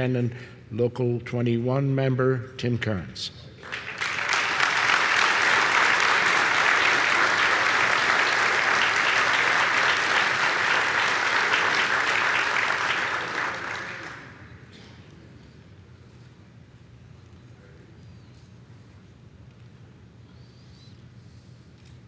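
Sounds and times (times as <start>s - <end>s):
audience applauding: 3.6s - 14.6s.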